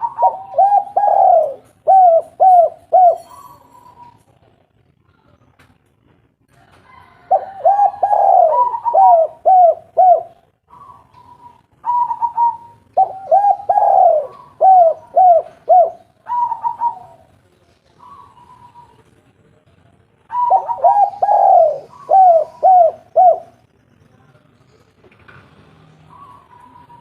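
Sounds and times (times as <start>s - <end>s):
dove cooing: 0.0s - 4.2s, 7.2s - 17.3s, 18.0s - 19.0s, 20.3s - 23.6s, 26.1s - 27.0s.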